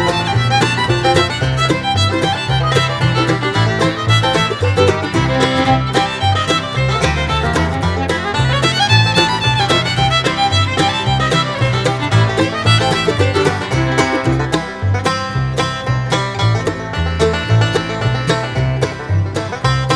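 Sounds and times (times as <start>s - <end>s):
fiddle-led bluegrass music: 0.0s - 19.9s.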